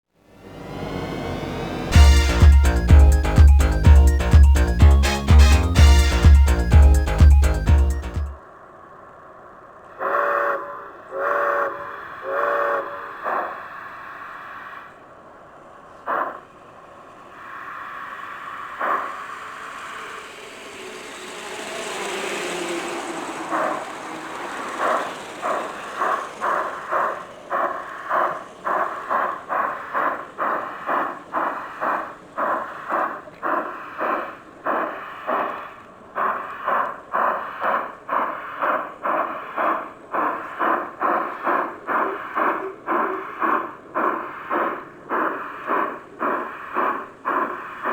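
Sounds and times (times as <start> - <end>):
steam locomotive chuffing: 0.3 - 8.4, 10.0 - 13.5, 18.4 - 47.9
model train whistle toots: 10.2 - 13.0
hiss of steam: 17.4 - 47.9.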